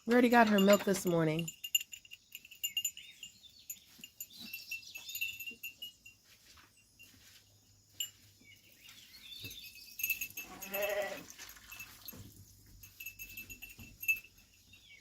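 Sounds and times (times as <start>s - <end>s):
birds chirping faintly: 0.0s - 15.0s.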